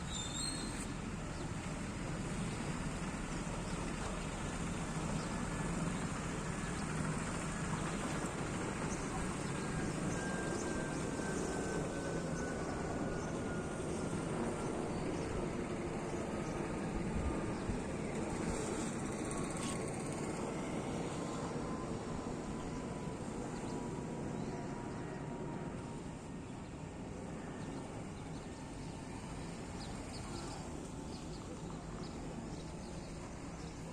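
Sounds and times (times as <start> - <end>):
jet engine rush in cabin: 0.0 - 33.9.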